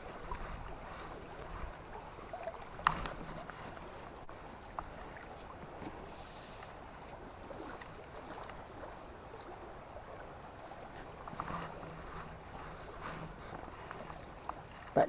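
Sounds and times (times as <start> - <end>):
faint ticks and splashes: 0.0 - 15.0
river water running: 0.0 - 15.0.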